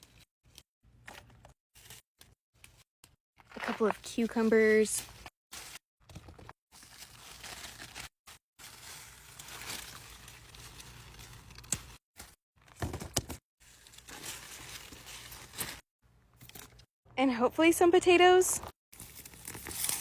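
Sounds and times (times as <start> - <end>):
leaves and stems rustling: 6.8 - 12.3, 13.6 - 15.8.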